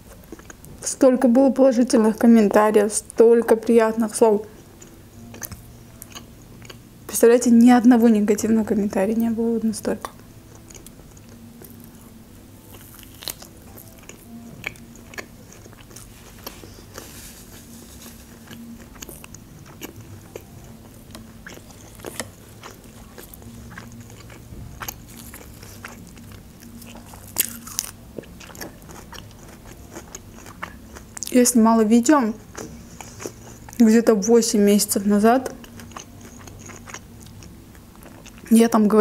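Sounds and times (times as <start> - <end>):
person chewing meat: 0.1 - 0.7, 4.5 - 6.9, 10.1 - 31.3, 32.4 - 33.8, 35.5 - 38.5
small crunches: 21.5 - 30.5.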